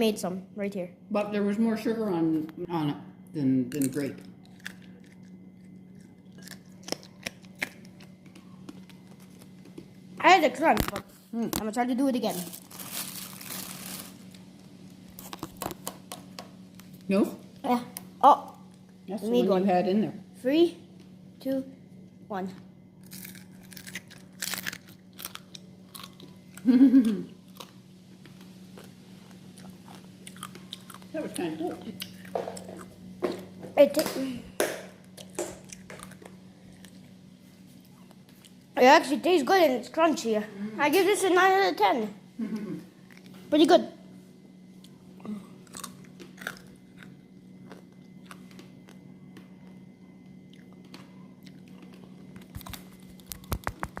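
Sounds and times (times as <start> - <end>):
steady low hum: 0.0 - 54.0
crunching on candy shell: 3.7 - 10.0, 12.3 - 16.0, 23.0 - 31.4, 45.6 - 49.1, 50.5 - 54.0.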